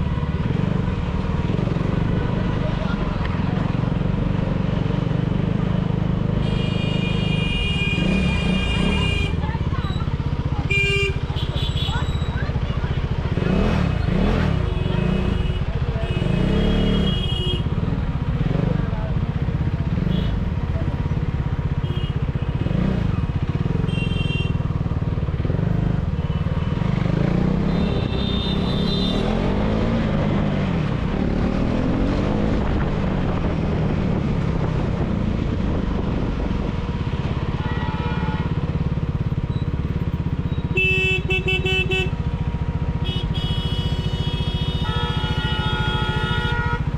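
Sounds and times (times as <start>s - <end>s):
motorcycle engine revving: 0.0s - 46.9s
car horn toots: 27.7s - 29.5s, 40.6s - 42.2s, 43.0s - 46.9s.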